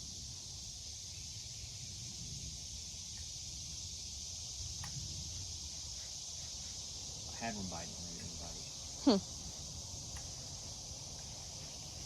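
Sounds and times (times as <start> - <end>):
insect chorus: 0.0 - 12.0
faint ticks: 3.0 - 3.4, 4.7 - 5.1, 8.1 - 8.5, 10.0 - 11.4.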